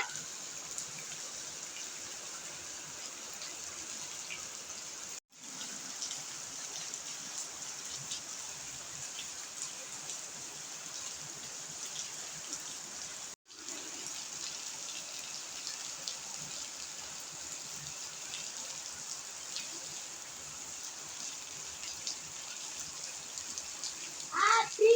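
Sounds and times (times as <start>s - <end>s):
heavy rain falling: 0.0s - 1.1s, 21.1s - 24.9s.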